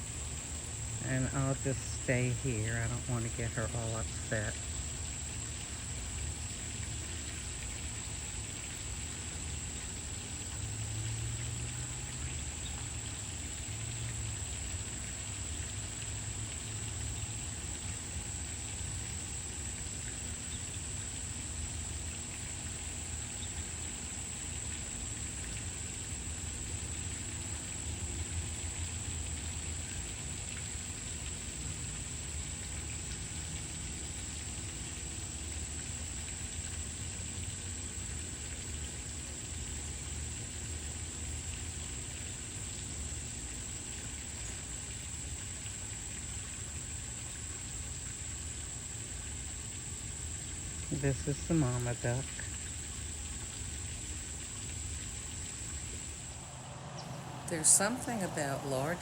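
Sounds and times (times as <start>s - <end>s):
even hiss: 0.0s - 5.4s, 55.5s - 59.0s
constant high-pitched whine: 0.0s - 59.0s
low rumble: 56.2s - 59.0s.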